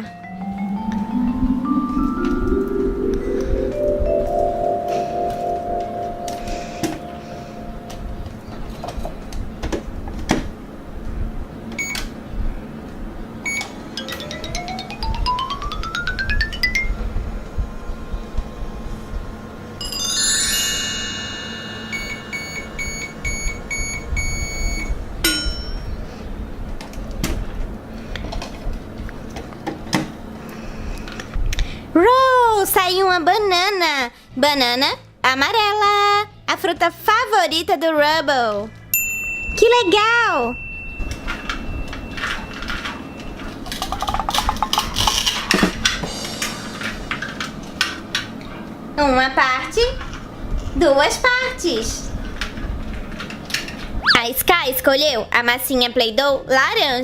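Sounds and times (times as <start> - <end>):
falling chime tones: 0.0 - 8.7, 13.5 - 17.1, 19.8 - 25.9
soft background music: 0.0 - 9.3, 14.0 - 17.0, 32.0 - 43.4, 46.1 - 57.0
electronic beeps: 13.5 - 15.3, 21.9 - 25.0
plastic toy pieces clicking: 43.7 - 45.4.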